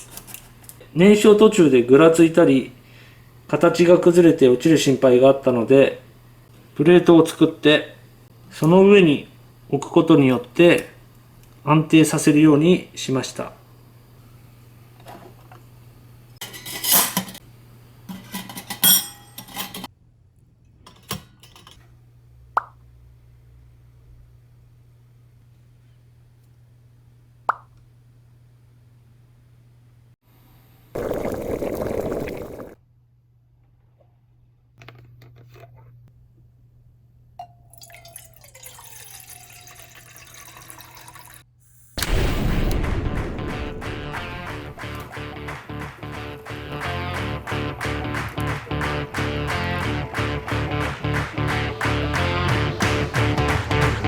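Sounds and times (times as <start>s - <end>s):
metal parts scraping and clattering: 16.4s - 17.4s
short ringing metal clink: 18.7s - 19.8s
liquid pouring: 31.0s - 32.8s, 37.7s - 41.4s
liquid dripping: 37.6s - 41.4s
music: 42.8s - 54.0s.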